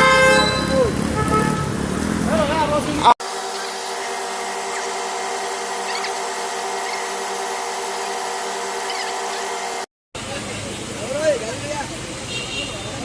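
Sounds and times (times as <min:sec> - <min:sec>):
machine-like drone: 0:03.2 - 0:09.9.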